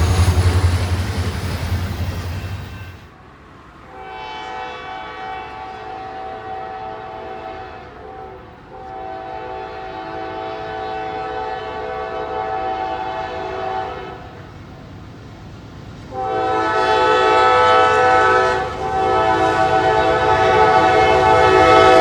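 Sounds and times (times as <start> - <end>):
locomotive air horn blasts: 3.9 - 14.4, 16.1 - 22.0.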